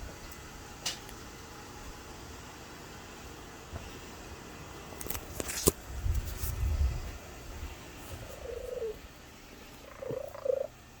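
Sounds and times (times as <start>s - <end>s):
cat purring: 8.1s - 11.0s
cat wavering call: 8.2s - 9.0s.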